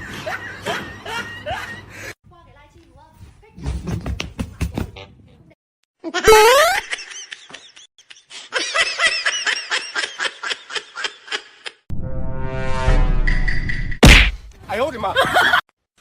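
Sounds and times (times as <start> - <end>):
loud rising squeal: 11.9 - 14.0.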